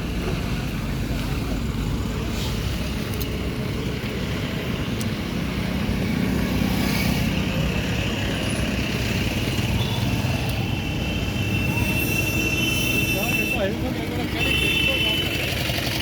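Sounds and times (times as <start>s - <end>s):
road traffic noise: 0.0s - 16.0s
vehicle engine running: 13.8s - 16.0s.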